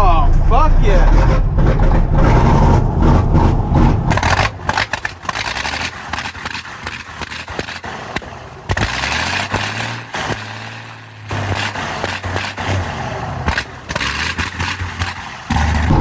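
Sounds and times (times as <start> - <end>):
diesel truck engine rough idle: 0.0 - 16.0
sharp engine knocks: 1.0 - 10.5.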